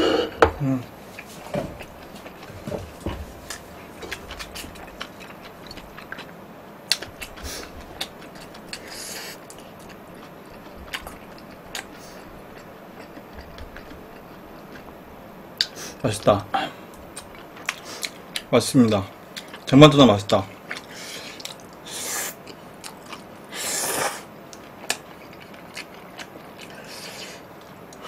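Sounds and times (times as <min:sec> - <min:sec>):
chewing noodles: 0:01.2 - 0:15.0, 0:20.6 - 0:28.0.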